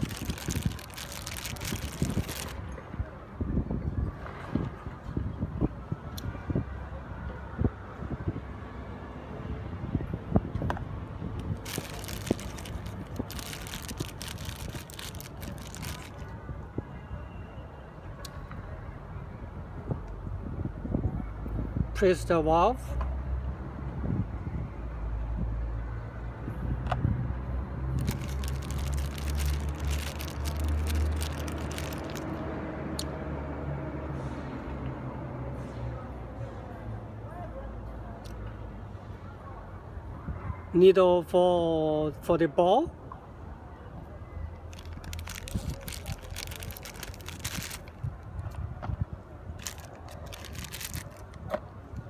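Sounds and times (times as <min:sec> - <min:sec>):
plastic packaging crinkling: 0:00.0 - 0:02.6, 0:11.4 - 0:16.3, 0:28.0 - 0:32.4, 0:44.7 - 0:48.5, 0:49.6 - 0:51.4
small plastic clicks and rustles: 0:00.0 - 0:02.6, 0:11.4 - 0:16.2, 0:28.0 - 0:32.4, 0:44.7 - 0:48.6, 0:49.6 - 0:51.6.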